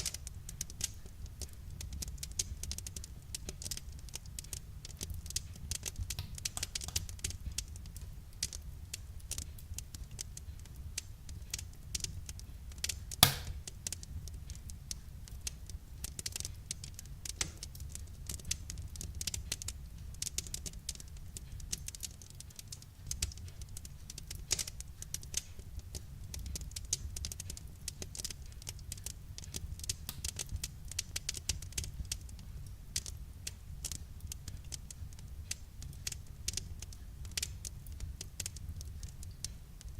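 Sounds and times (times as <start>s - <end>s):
low fire rumble: 0.0s - 39.9s
wood fire crackling: 0.0s - 39.9s
loud fire pop: 13.2s - 13.7s.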